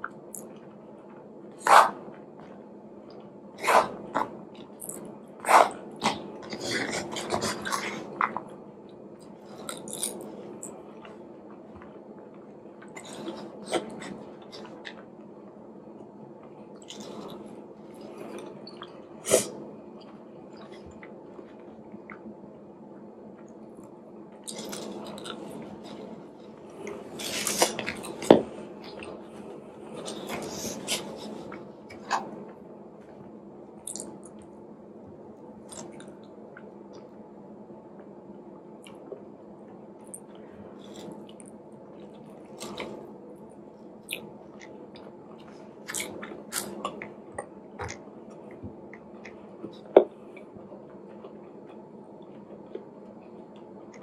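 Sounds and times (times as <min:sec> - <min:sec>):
faint steady hum: 0:00.0 - 0:54.0
chewing mouth noises: 0:33.8 - 0:34.5, 0:35.7 - 0:36.7, 0:44.0 - 0:50.5.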